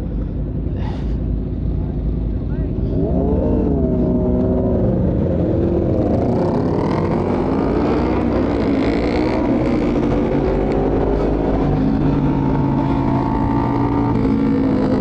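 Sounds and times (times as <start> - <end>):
motorbike engine revving: 2.9 - 15.0.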